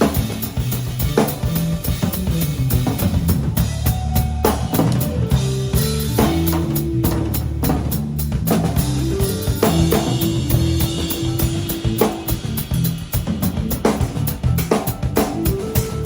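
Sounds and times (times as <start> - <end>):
bass line: 0.0 - 16.0
drum kit beat: 0.0 - 16.0
held guitar notes: 8.8 - 13.9.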